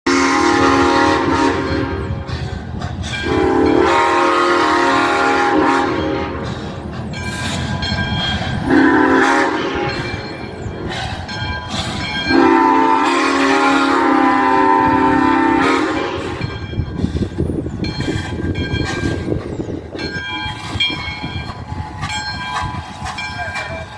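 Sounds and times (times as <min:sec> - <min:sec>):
locomotive whistle blasts: 0:00.1 - 0:02.3, 0:03.2 - 0:06.5, 0:08.6 - 0:10.2, 0:12.3 - 0:16.6
locomotive engine rumble: 0:00.1 - 0:23.9.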